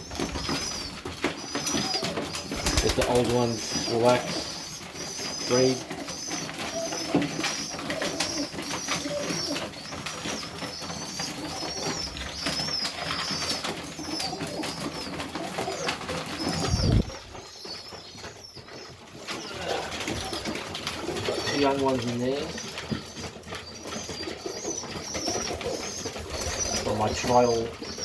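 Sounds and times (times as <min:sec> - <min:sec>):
pigeons cooing: 0:00.0 - 0:28.0
young pigeons squeaking: 0:00.0 - 0:28.0.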